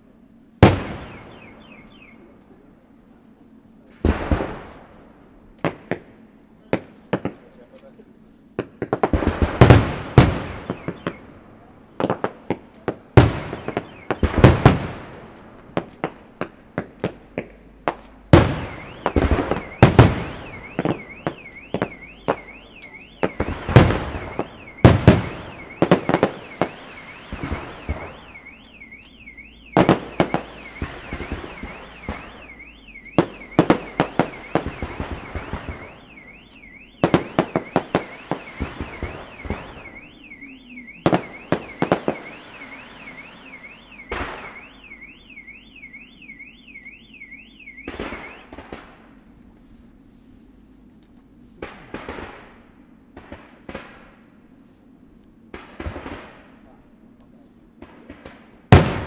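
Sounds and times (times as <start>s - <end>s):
crackling firework stars: 0.0s - 59.0s
car alarm warbling: 0.8s - 2.4s, 9.8s - 11.4s, 13.3s - 15.2s, 18.4s - 49.2s
firework shells bursting: 12.0s - 45.0s.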